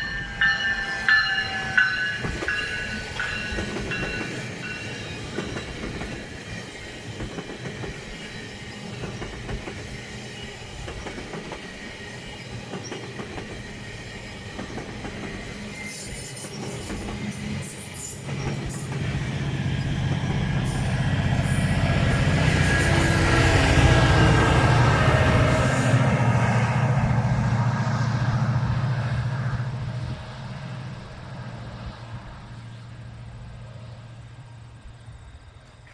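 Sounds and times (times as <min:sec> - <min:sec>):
train wheels clicking over track: 0:00.0 - 0:25.5.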